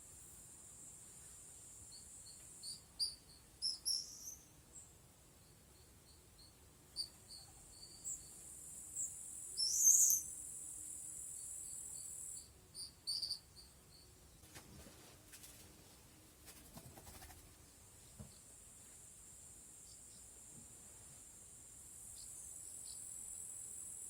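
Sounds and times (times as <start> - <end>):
insect trill: 0.2 - 14.3, 21.6 - 24.0
bird chirps: 2.3 - 4.5, 9.0 - 10.3, 12.8 - 14.1.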